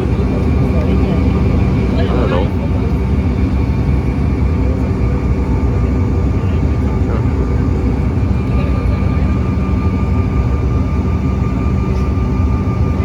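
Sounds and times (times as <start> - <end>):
jet engine drone in cabin: 0.0 - 13.0.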